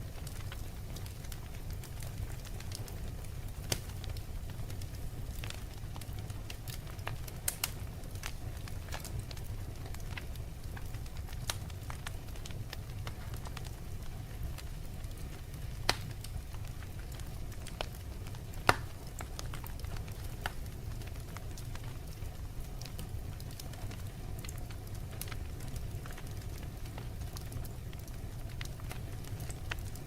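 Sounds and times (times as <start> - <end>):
fire crackling and popping: 0.0 - 30.0.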